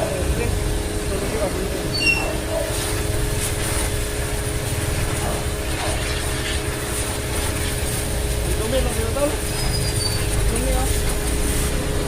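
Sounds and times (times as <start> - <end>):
pressure washer motor humming: 0.0 - 12.0
water jet spraying hiss: 2.5 - 12.0.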